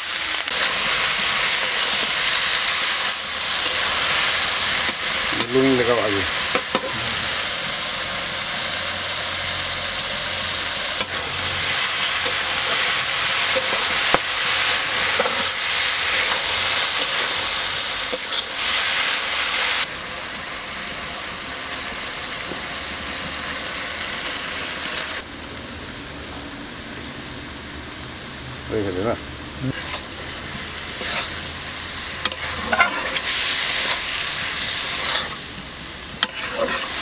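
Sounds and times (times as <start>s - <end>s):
meat sizzling in a wok: 0.0s - 28.4s, 29.4s - 37.0s
metal spatula scraping a pan: 29.7s - 30.1s, 30.9s - 31.5s, 32.2s - 35.5s, 36.2s - 37.0s.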